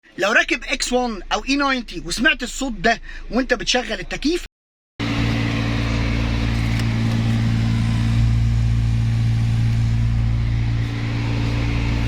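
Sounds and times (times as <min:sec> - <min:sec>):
blower fan humming with airy rush: 0:05.0 - 0:12.0.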